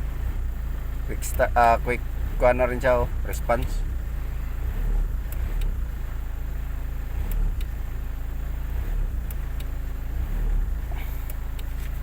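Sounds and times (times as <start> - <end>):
diesel engine running: 0.0 - 12.0
light ticks: 9.2 - 9.8, 11.2 - 12.0.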